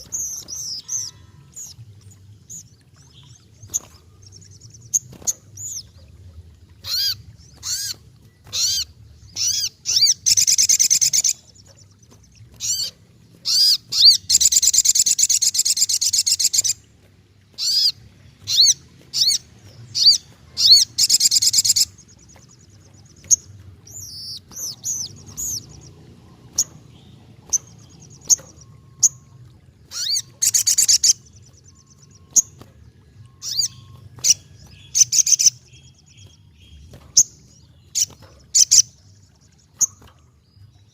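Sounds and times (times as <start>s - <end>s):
bird high sweeping calls: 0.0s - 1.8s, 6.8s - 16.9s, 17.5s - 40.2s
bird rapid chattering: 17.6s - 25.9s, 29.9s - 31.3s.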